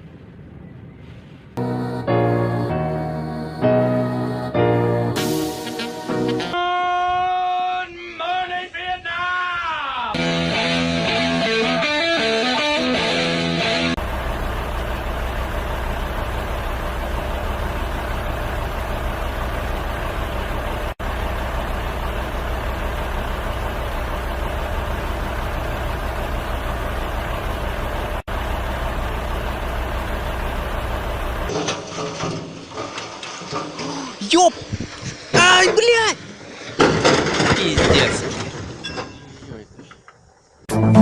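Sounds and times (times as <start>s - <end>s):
vehicle engine and road noise: 13.9s - 32.9s.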